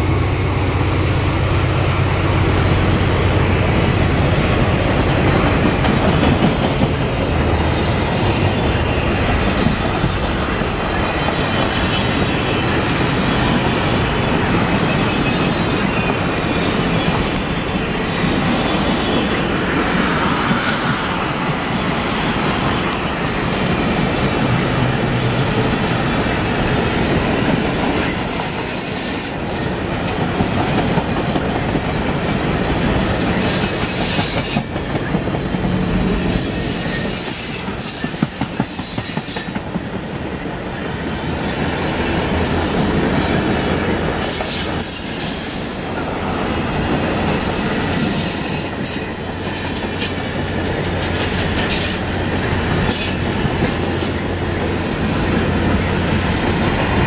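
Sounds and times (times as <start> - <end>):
train wheels rumbling and clattering: 0.0 - 57.0
high-pitched wheel squeals: 26.9 - 29.8.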